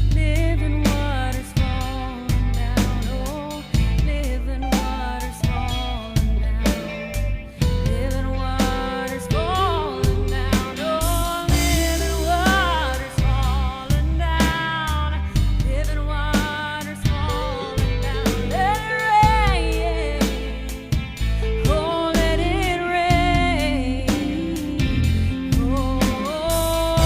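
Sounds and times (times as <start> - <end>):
band with drums and bass: 0.0 - 27.0
woman singing gospel: 0.0 - 27.0.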